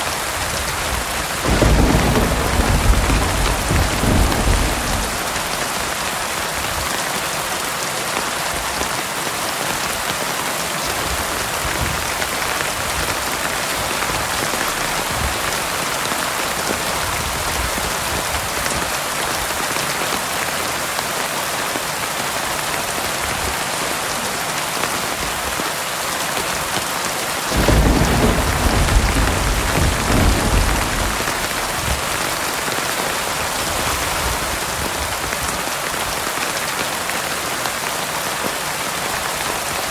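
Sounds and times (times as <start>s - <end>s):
heavy rain: 0.0s - 39.9s
low thunder rumble: 1.4s - 6.3s, 27.5s - 32.7s.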